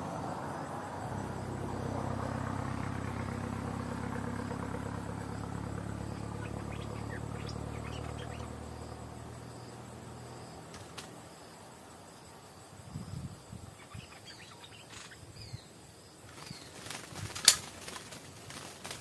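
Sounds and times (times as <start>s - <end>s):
vehicle engine running: 0.0s - 11.7s
insects trilling: 0.0s - 19.0s
short bird chirps: 6.2s - 8.5s, 13.8s - 15.7s.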